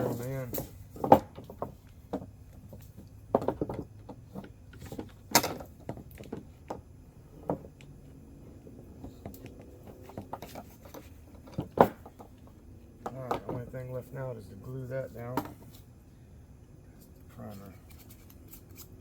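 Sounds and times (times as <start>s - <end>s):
knocks and clicks handling wires: 0.0s - 7.9s, 9.0s - 13.7s.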